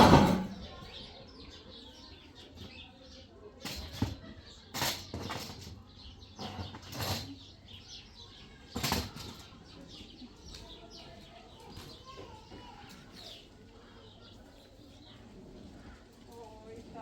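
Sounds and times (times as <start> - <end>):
small birds chirping: 0.5 - 17.0.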